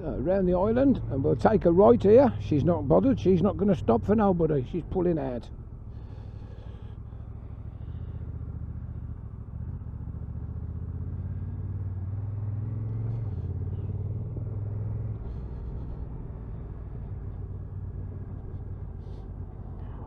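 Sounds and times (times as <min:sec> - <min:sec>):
motorcycle engine pulling: 0:12.3 - 0:20.0.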